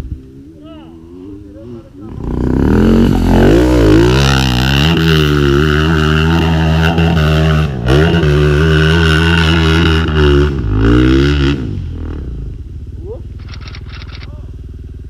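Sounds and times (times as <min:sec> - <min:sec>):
off-road motorcycle engine revving: 0:00.3 - 0:15.0.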